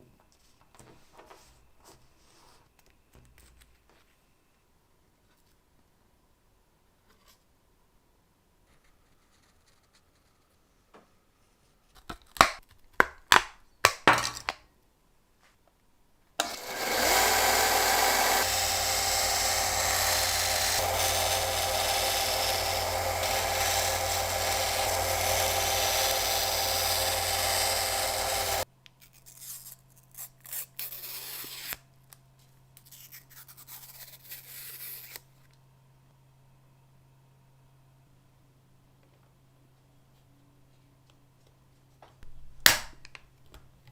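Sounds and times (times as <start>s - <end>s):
power tool running: 16.4s - 28.6s.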